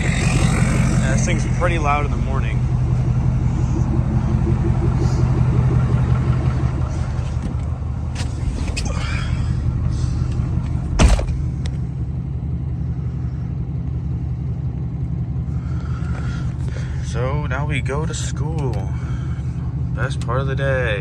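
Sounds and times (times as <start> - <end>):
truck engine idling: 0.0 - 21.0
sharp thump: 10.9 - 11.5.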